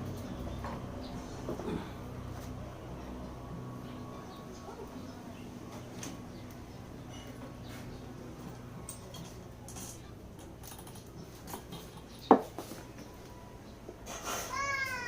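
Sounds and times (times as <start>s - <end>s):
metal tools and parts clinking: 8.5s - 12.5s.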